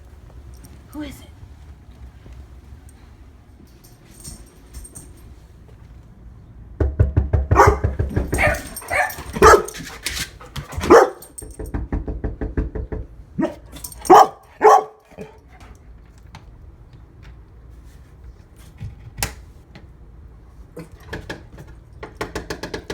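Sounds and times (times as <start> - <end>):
dog barking: 7.5 - 9.8, 10.8 - 11.4, 13.4 - 15.4.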